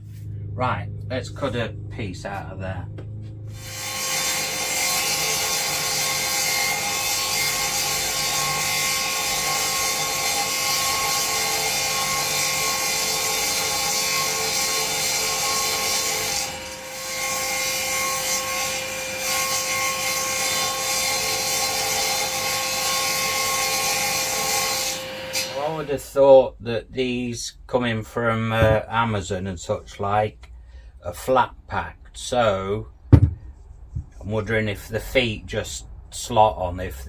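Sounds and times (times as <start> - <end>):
power saw cutting wood: 1.1 - 26.3.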